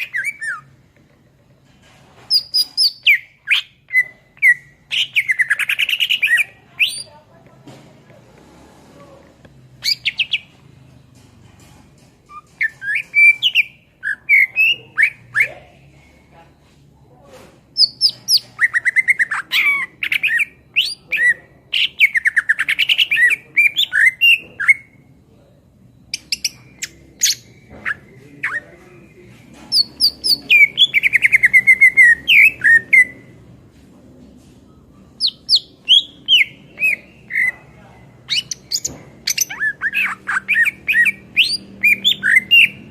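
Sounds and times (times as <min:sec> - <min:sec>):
bird singing chirps and trills: 0:12.3 - 0:15.6, 0:17.8 - 0:25.0, 0:35.2 - 0:42.9.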